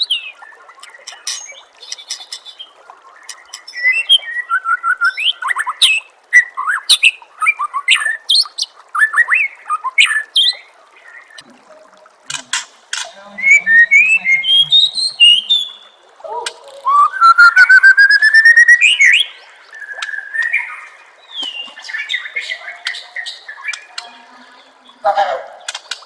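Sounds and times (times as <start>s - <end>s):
bird singing clear notes: 12.5s - 25.8s.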